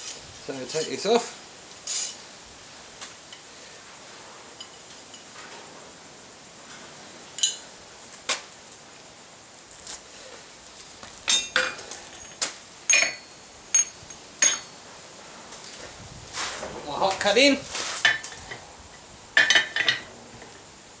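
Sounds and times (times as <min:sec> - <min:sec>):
steel tools clinking: 0:04.6 - 0:05.3, 0:07.4 - 0:07.7, 0:11.3 - 0:14.8, 0:19.4 - 0:20.1.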